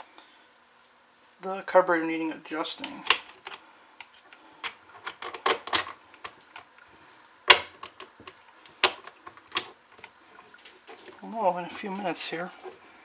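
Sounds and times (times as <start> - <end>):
hand tools clicking and knocking: 2.8 - 3.6, 4.6 - 6.7, 7.5 - 10.1.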